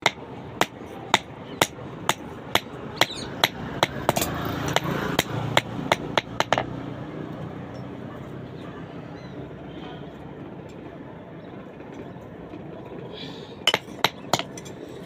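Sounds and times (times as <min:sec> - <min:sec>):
hammer striking metal: 0:00.0 - 0:06.7.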